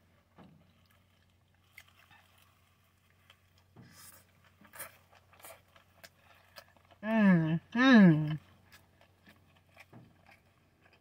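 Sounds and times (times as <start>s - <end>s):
faint chewing: 0.0s - 11.0s.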